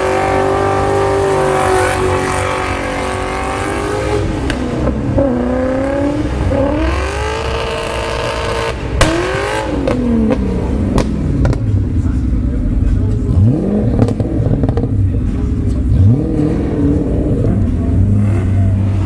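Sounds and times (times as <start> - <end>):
car engine revving hard: 0.0 - 19.0
sharp cracks: 4.4 - 5.1, 9.0 - 10.4.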